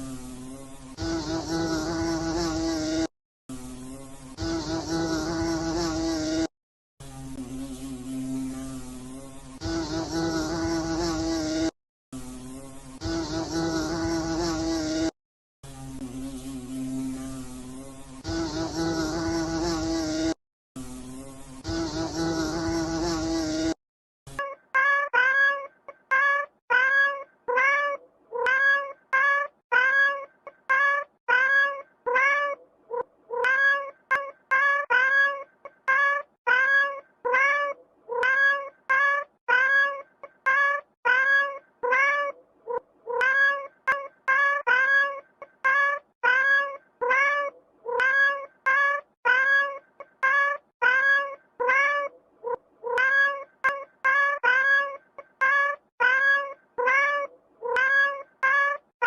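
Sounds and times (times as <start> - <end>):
cat meowing: 24.4 - 58.9.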